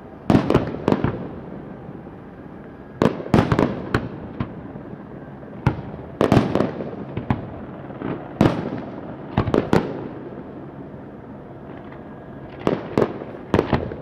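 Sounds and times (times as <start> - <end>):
fireworks bangs: 0.3 - 1.4, 3.0 - 4.6, 5.6 - 10.3, 11.7 - 14.0.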